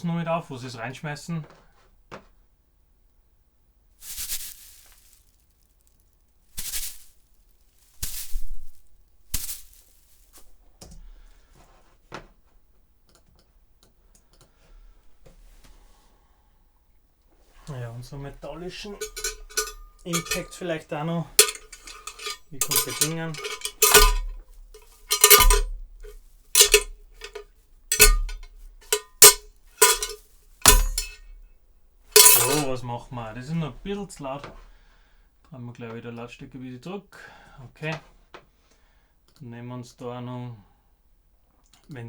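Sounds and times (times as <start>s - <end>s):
metal clanking: 18.8s - 20.7s, 21.4s - 31.3s, 32.2s - 32.8s.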